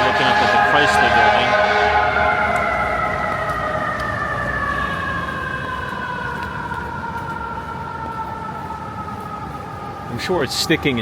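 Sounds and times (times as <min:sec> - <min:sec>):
siren falling in pitch: 0:00.0 - 0:06.4
city street noise: 0:00.0 - 0:11.0.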